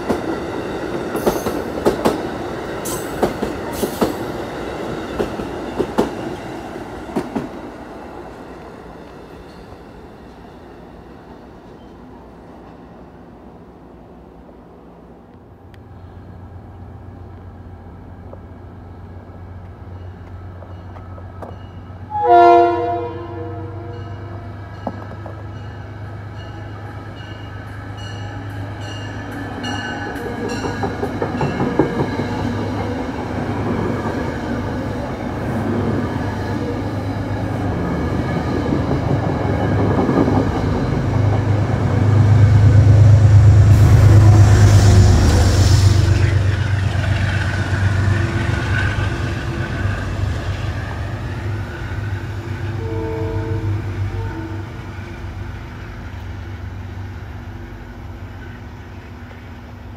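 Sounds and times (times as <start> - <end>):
train wheels clattering on rail: 0.0 - 10.4, 19.6 - 21.8, 24.7 - 26.5, 28.8 - 52.7
train horn: 22.1 - 24.5, 52.7 - 54.9.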